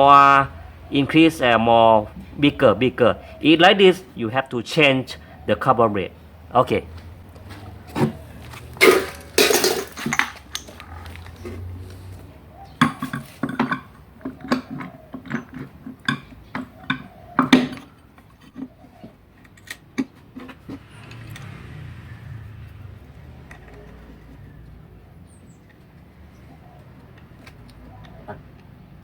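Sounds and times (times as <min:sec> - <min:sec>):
metal clatter: 0:08.8 - 0:10.8
metal parts clinking and knocking: 0:08.8 - 0:11.0, 0:12.8 - 0:18.6.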